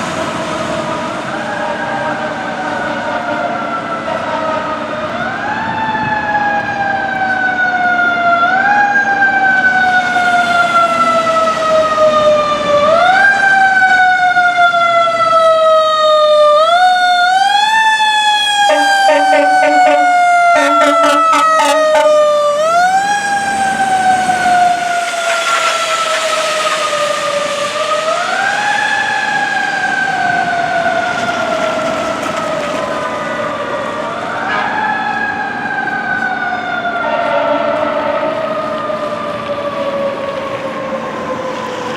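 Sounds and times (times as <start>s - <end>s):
heavy truck passing: 0.0s - 7.8s, 16.6s - 41.9s
fire truck sirens wailing: 0.0s - 41.9s
air horn blasts: 18.6s - 22.5s, 34.4s - 35.0s, 37.0s - 38.5s.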